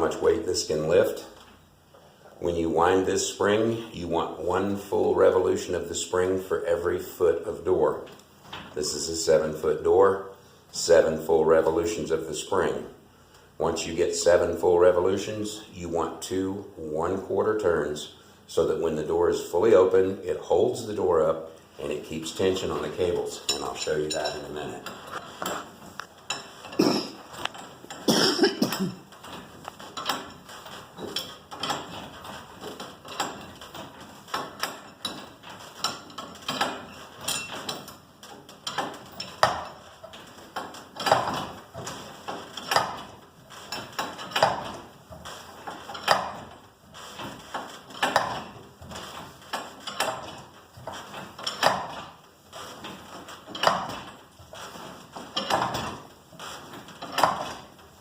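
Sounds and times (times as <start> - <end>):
steel bars clinking on metal: 34.4 - 37.9.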